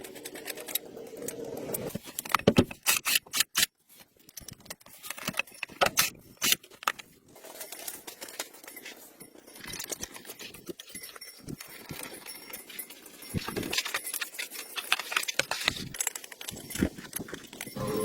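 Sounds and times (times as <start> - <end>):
small hard objects clicking: 9.6 - 17.8.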